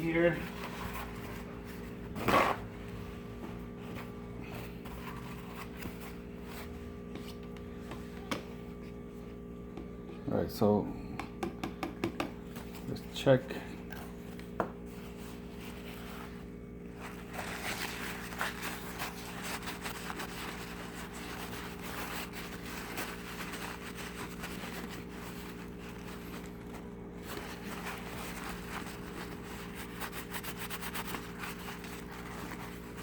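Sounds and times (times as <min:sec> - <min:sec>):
paper napkin scraping metal: 0:15.0 - 0:33.0.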